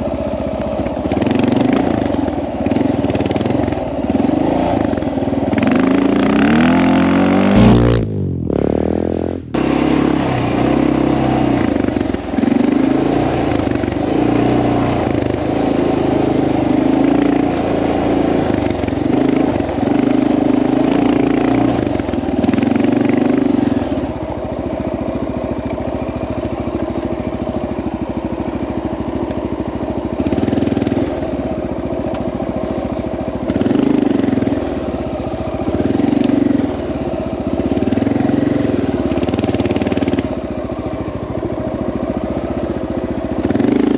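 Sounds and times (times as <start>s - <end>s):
motorcycle engine running: 7.6s - 9.7s, 23.6s - 43.9s.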